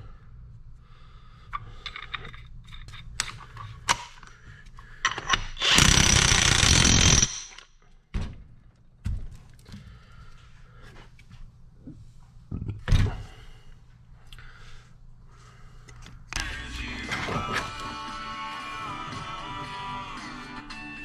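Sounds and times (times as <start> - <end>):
power tool running: 5.6 - 7.6.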